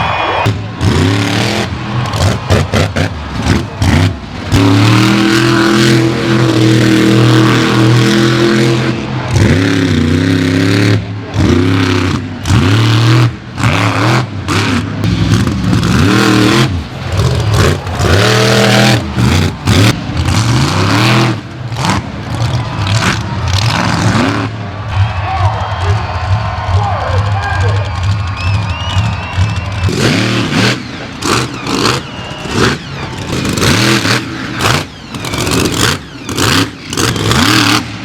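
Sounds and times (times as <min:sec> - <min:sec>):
truck engine revving: 0:00.4 - 0:38.0.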